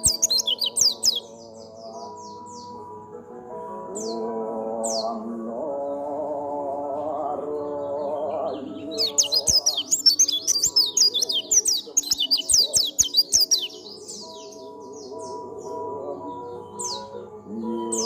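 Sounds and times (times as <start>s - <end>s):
bird chirping: 0.0s - 2.8s, 7.2s - 18.0s
background music: 0.0s - 18.0s.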